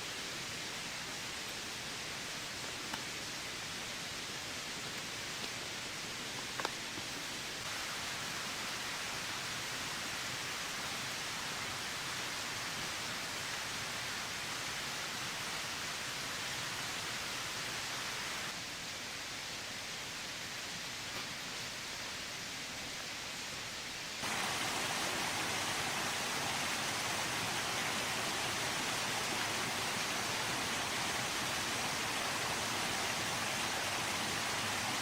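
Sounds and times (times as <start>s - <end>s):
heavy rain falling: 7.1s - 18.6s, 24.2s - 35.0s.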